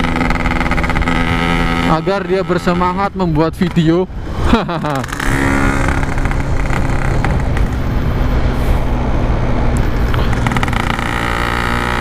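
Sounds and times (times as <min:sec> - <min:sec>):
two-stroke motorcycle engine: 0:00.0 - 0:04.0, 0:04.8 - 0:08.0, 0:09.8 - 0:12.0
wind noise: 0:03.0 - 0:11.3.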